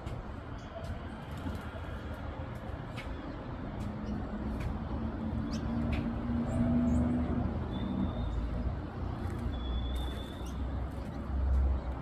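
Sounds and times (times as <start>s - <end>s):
thin bird whistles: 9.5s - 10.6s.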